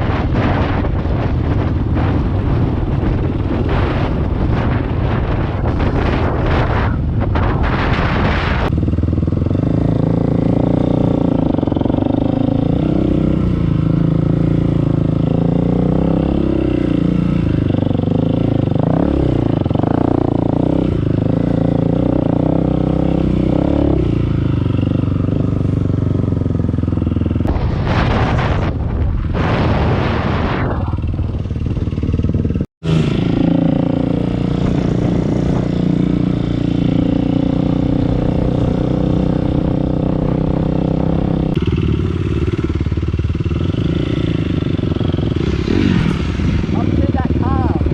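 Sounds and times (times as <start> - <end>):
wind on microphone: 0.0 - 47.9
dirt bike engine revving: 29.3 - 47.9.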